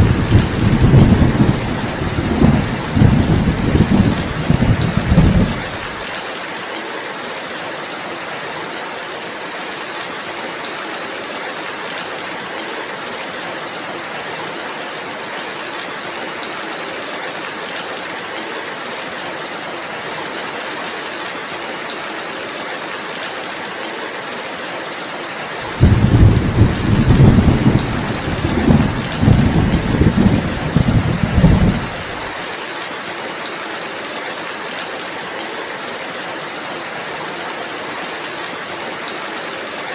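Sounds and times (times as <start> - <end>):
thunder rumbling: 0.0 - 6.0, 25.6 - 32.4
steady rainfall: 0.0 - 39.9.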